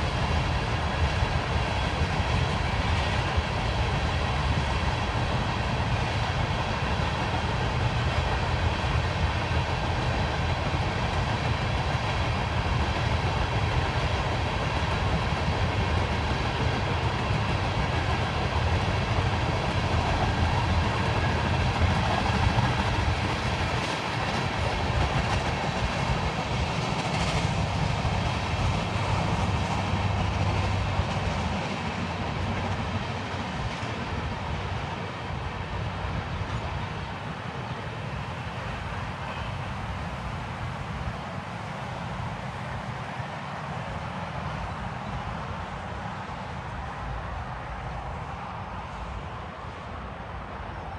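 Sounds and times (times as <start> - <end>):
train wheels clicking: 0.0 - 37.7
freight train rumbling past: 0.0 - 50.9.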